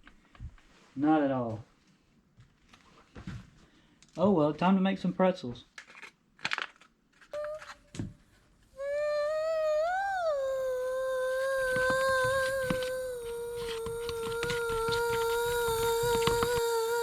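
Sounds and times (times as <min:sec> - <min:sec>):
person humming high note: 0:07.4 - 0:07.9, 0:08.7 - 0:17.0.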